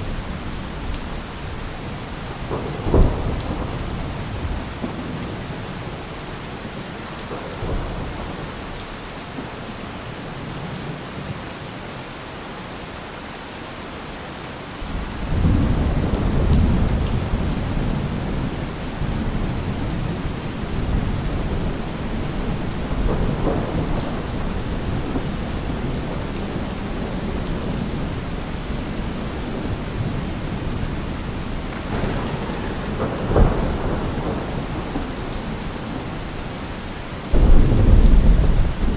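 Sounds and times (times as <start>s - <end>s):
heavy rain: 0.0s - 38.9s
rolling thunder: 2.3s - 5.6s, 14.9s - 36.6s, 37.3s - 38.9s
sharp thunderclap: 2.5s - 5.0s, 22.9s - 28.0s, 31.7s - 35.2s, 37.3s - 38.9s.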